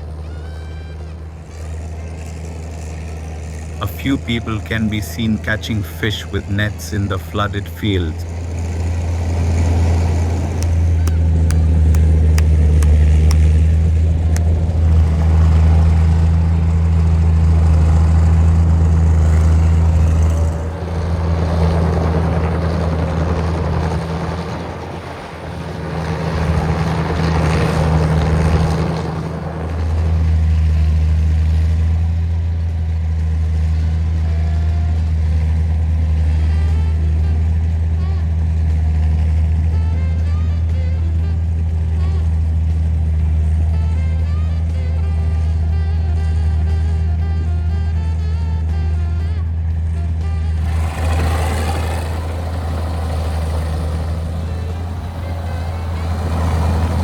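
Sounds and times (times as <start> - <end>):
tractor engine running: 0.0 - 47.1, 50.5 - 57.0.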